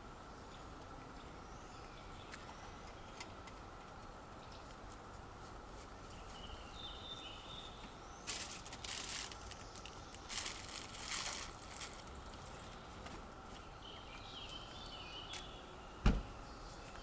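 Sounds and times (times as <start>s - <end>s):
steady background hiss: 0.0s - 17.0s
bird chirps: 6.2s - 8.3s, 11.6s - 17.0s
loud rustling: 8.2s - 12.4s.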